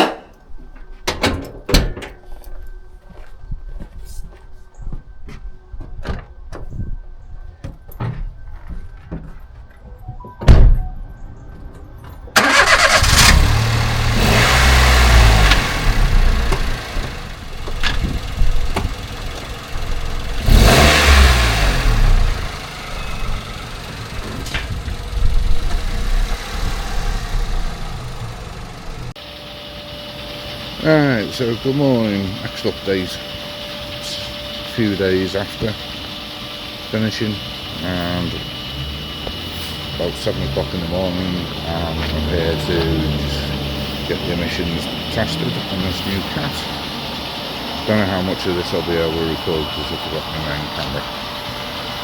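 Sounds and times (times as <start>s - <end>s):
car engine revving: 12.4s - 52.0s.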